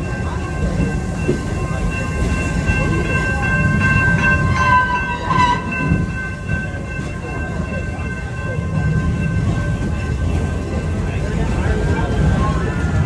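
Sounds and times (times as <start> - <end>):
ride train rumbling on track: 0.0 - 13.0.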